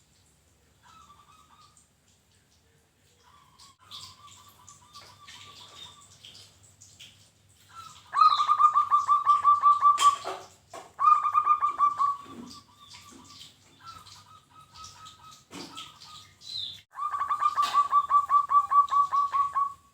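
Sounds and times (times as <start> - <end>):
small birds chirping: 0.7 - 19.9
dove cooing: 7.7 - 10.4, 11.0 - 16.0, 17.0 - 19.9.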